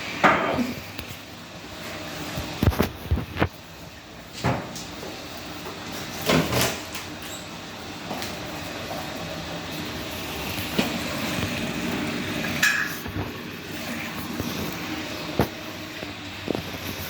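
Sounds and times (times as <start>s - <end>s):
washing machine rumbling: 0.0s - 17.0s.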